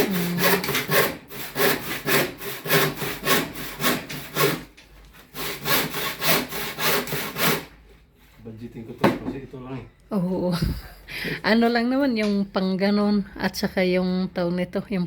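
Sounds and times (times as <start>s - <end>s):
hand saw cutting wood: 0.0s - 7.8s.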